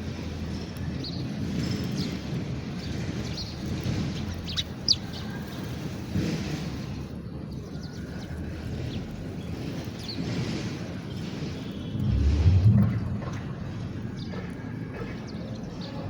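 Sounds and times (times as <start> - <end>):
sparrows chirping: 0.2 - 5.5, 6.9 - 12.0, 14.0 - 16.0
low background rumble: 11.9 - 15.1.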